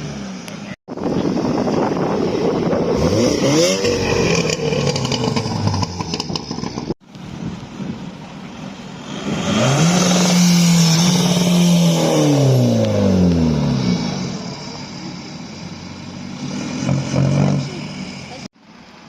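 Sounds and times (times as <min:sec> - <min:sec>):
car engine revving: 0:02.7 - 0:07.0, 0:08.8 - 0:18.5.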